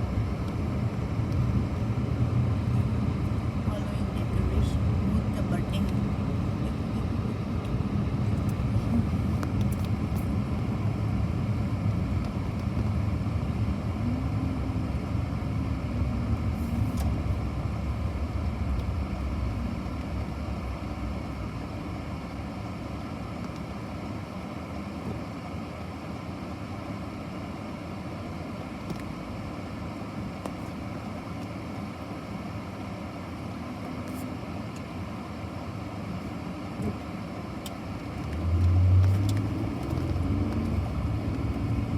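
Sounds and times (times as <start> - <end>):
car driving rumble: 0.0 - 41.9.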